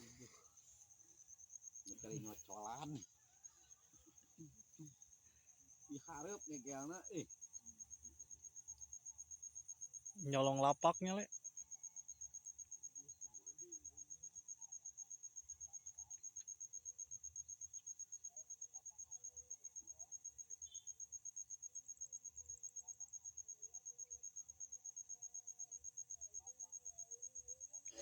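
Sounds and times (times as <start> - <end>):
cricket calling: 0.0 - 28.0.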